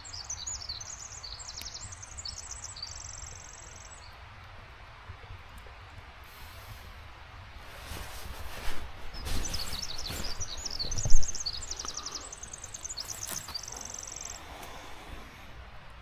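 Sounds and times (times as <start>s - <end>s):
songbird singing: 0.0s - 4.2s, 9.0s - 16.0s.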